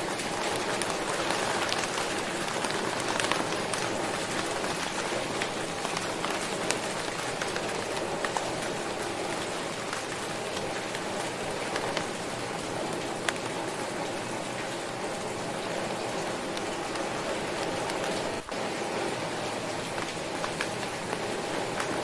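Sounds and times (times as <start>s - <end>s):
raindrops ticking: 0.0s - 22.0s
steady rain hiss: 0.0s - 22.0s.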